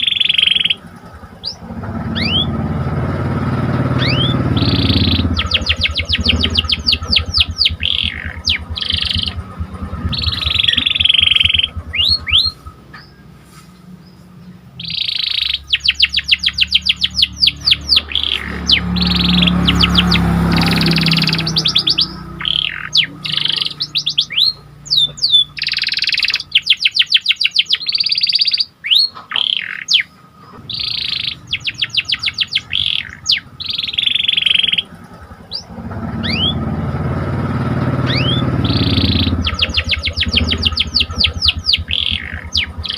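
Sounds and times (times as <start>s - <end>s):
canary singing: 0.0s - 42.9s
low rumble: 0.8s - 13.2s, 34.8s - 42.9s.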